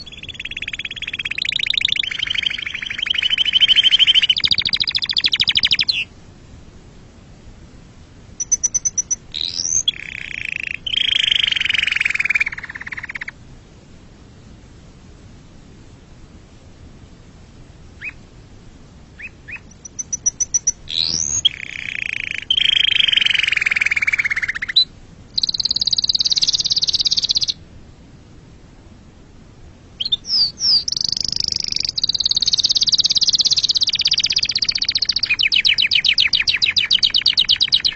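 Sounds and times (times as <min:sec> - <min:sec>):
canary singing trills: 0:00.0 - 0:06.1, 0:08.4 - 0:13.4, 0:18.0 - 0:18.2, 0:19.2 - 0:27.6, 0:30.0 - 0:37.9.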